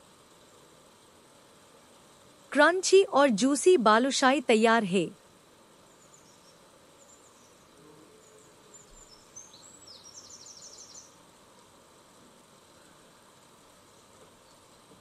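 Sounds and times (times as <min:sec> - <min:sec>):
background hiss: 0:00.0 - 0:15.0
faint high bird chirps: 0:08.2 - 0:11.2.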